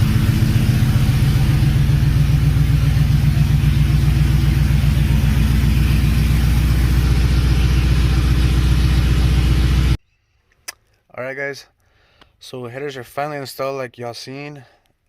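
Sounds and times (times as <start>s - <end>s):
loud engine idling: 0.0s - 10.0s.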